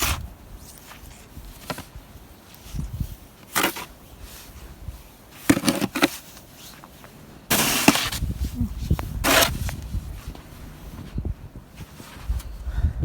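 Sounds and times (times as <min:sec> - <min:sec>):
snow shovel scraping snow: 0:03.1 - 0:06.8, 0:07.5 - 0:08.3, 0:09.2 - 0:09.8.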